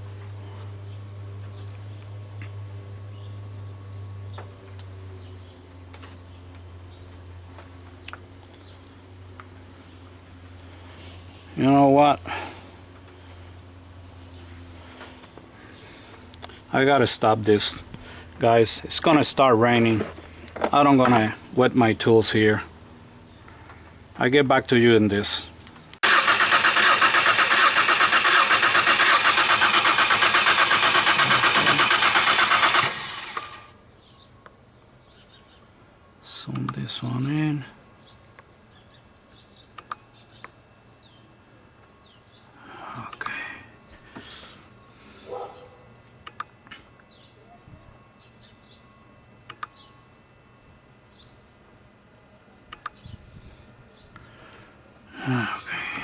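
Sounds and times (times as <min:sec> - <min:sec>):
faint birds chirping: 0:00.2 - 0:26.0, 0:33.7 - 0:56.0
engine cranking without starting: 0:26.0 - 0:33.7
sharp clicks: 0:39.7 - 0:40.6, 0:46.2 - 0:46.6, 0:49.4 - 0:49.8, 0:52.7 - 0:53.0.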